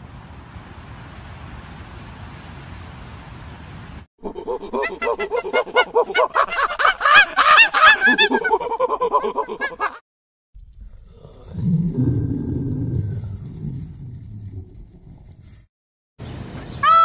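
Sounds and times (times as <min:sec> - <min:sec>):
tiger growling: 0:10.7 - 0:15.6.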